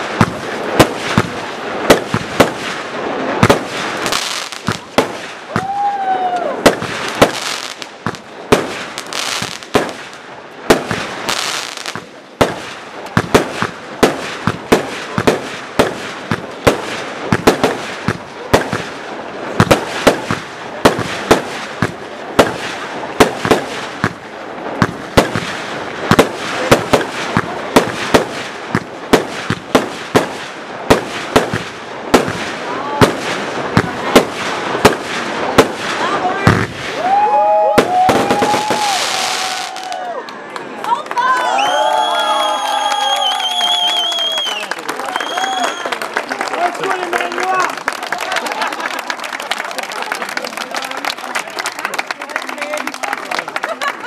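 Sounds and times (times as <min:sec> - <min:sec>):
firework bangs: 0:00.0 - 0:40.1
fireworks crackling: 0:00.0 - 0:54.0.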